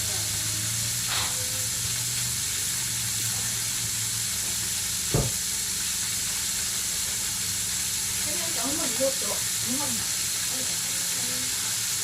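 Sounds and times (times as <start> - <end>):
chicken sizzling in hot oil: 0.0 - 12.0
sharp knock: 5.1 - 5.4.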